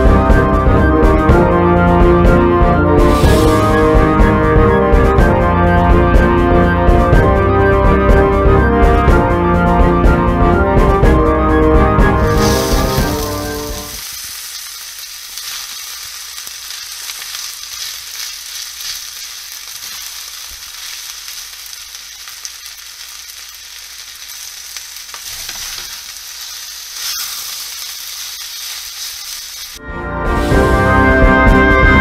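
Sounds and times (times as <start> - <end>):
food sizzling in a frying pan: 3.0 - 3.8, 12.2 - 29.8
wooden spatula clicks and scrapes: 25.1 - 26.1.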